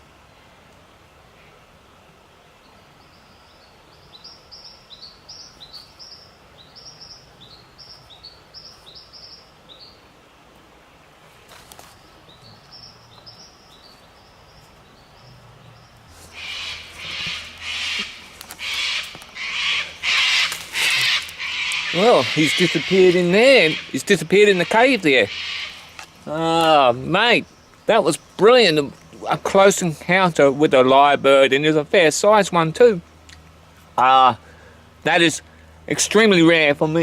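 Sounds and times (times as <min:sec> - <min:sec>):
bird chirping: 0:02.6 - 0:10.0, 0:12.0 - 0:29.4
crunching rustles: 0:11.3 - 0:12.1, 0:15.9 - 0:23.2.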